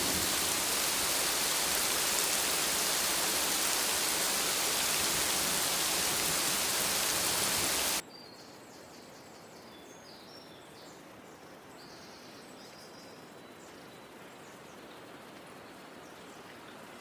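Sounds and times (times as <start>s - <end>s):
birds chirping: 0.0s - 8.0s
heavy rain: 0.0s - 8.0s.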